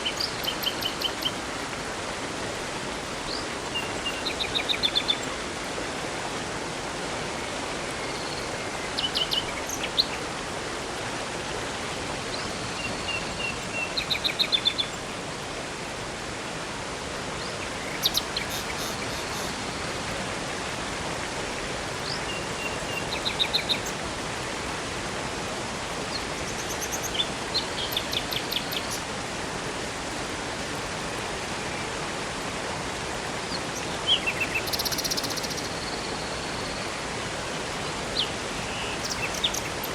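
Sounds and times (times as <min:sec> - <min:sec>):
river water flowing: 0:00.0 - 0:39.9
birds chirping and trilling: 0:08.1 - 0:10.2, 0:17.4 - 0:19.6, 0:26.1 - 0:29.0, 0:33.5 - 0:36.8, 0:38.2 - 0:39.9.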